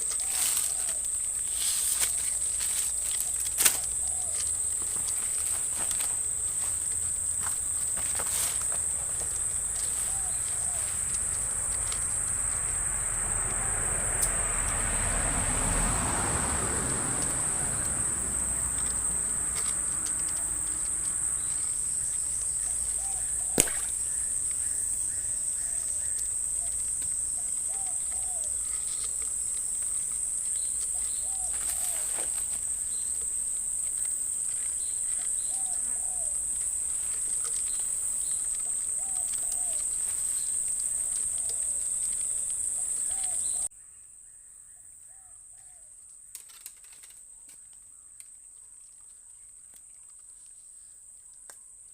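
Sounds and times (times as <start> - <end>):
high-pitched insect drone: 0.0 - 43.7
sharp click: 23.5 - 24.0.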